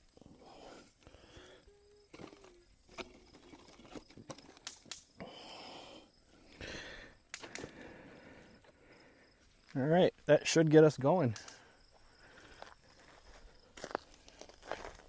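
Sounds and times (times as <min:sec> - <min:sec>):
campfire crackling and hissing: 0:00.0 - 0:10.6.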